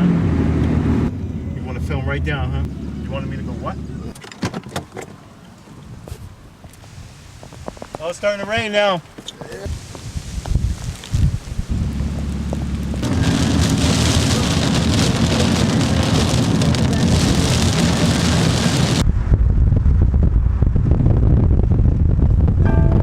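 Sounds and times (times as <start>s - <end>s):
wind buffeting microphone: 5.7s - 23.0s
rain falling: 6.8s - 19.0s.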